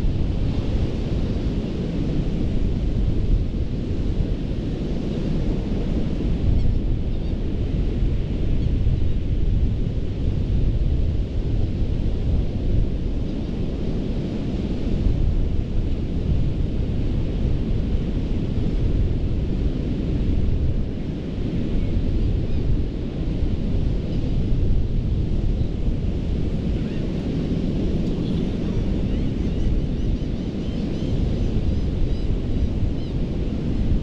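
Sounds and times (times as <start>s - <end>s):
ocean surf on beach: 9.3s - 34.0s.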